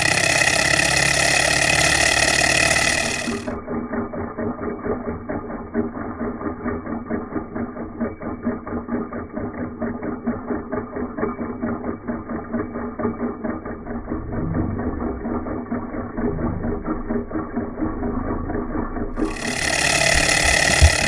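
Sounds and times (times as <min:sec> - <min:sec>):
stirling engine running: 0:00.0 - 0:04.0, 0:13.3 - 0:21.0.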